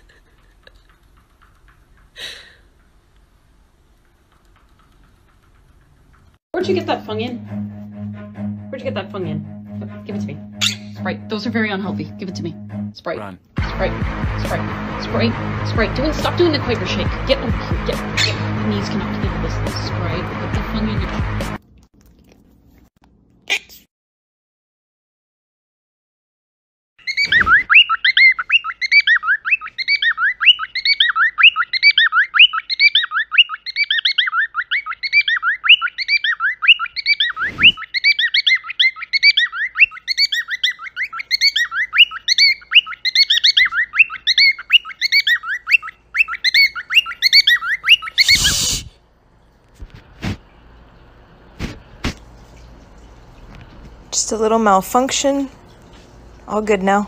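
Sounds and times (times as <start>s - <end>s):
bird chirping rapidly: 13.7s - 21.2s, 27.0s - 48.9s.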